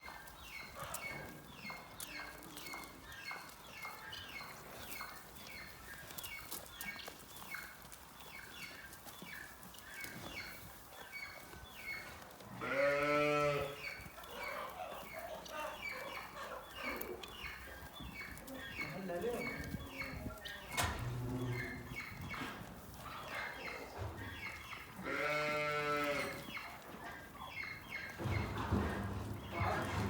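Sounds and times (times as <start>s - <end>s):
small birds chirping: 0.0s - 29.8s
goat bleating: 12.6s - 13.8s, 25.0s - 26.4s.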